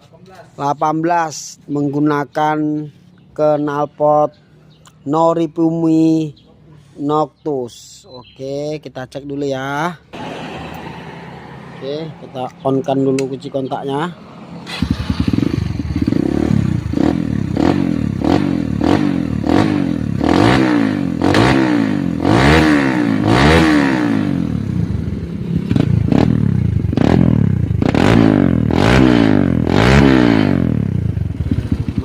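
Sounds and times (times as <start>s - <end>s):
dirt bike engine revving: 14.4s - 32.0s.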